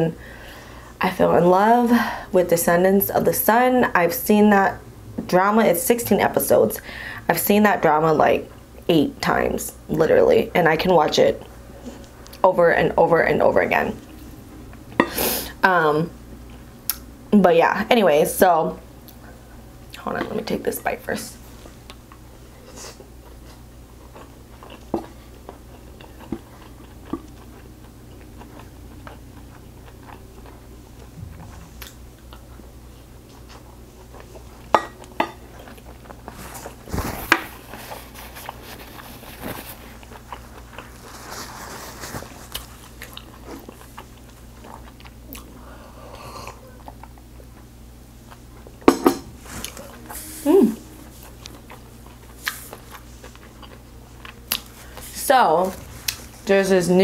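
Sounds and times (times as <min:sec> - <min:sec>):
chewing food: 0:22.9 - 0:45.6, 0:46.4 - 0:48.8, 0:50.9 - 0:56.5.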